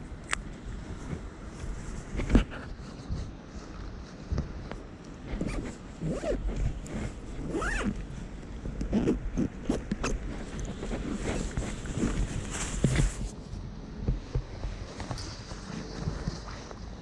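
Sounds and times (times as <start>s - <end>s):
zipper being pulled: 5.3s - 8.1s, 8.8s - 13.3s.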